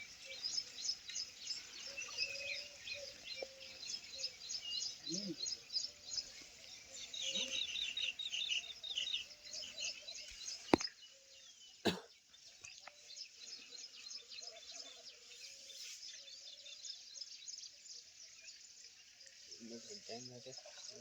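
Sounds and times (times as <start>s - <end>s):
chorus of high chirping calls: 0.0s - 10.4s.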